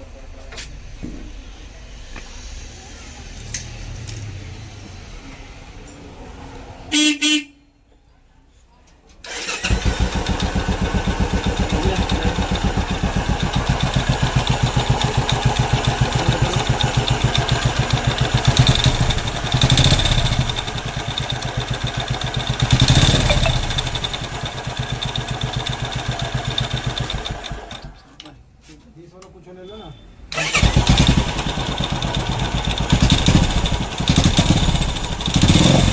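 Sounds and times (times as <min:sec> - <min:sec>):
motorcycle engine idling and revving: 0:09.3 - 0:28.1, 0:30.3 - 0:35.9.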